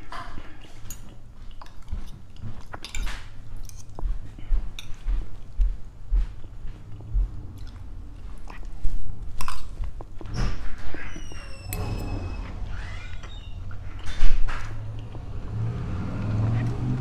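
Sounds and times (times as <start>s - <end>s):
person chewing: 0.4s - 5.6s, 6.3s - 11.3s.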